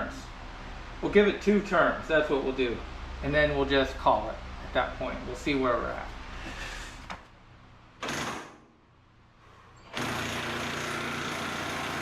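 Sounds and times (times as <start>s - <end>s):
power tool turning a bolt: 9.9s - 12.0s.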